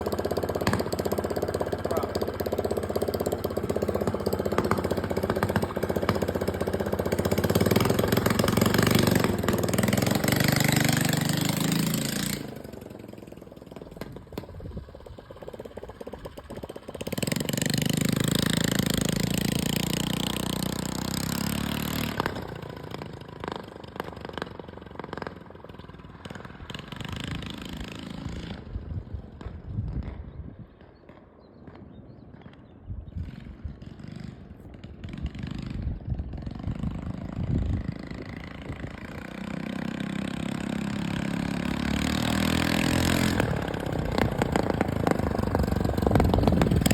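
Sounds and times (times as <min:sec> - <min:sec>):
mini bike engine revving: 0:00.0 - 0:30.3, 0:33.0 - 0:46.9.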